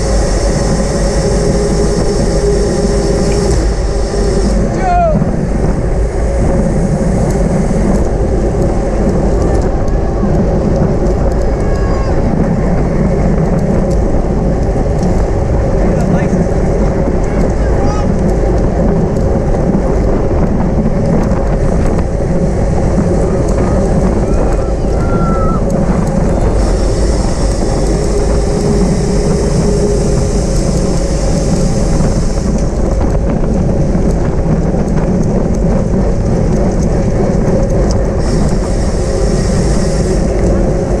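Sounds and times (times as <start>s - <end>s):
high hiss: 0.0s - 7.8s, 26.4s - 32.8s, 38.2s - 41.0s
wind rushing over microphone: 0.0s - 41.0s.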